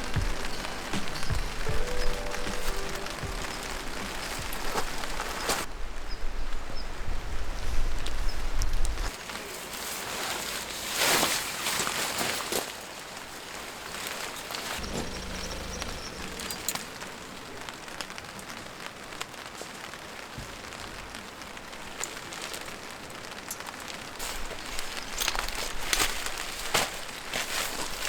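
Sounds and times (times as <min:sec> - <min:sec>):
rustles or scuffs: 0:00.0 - 0:05.7, 0:07.6 - 0:15.2, 0:24.2 - 0:28.0
steady rain falling: 0:00.0 - 0:28.0.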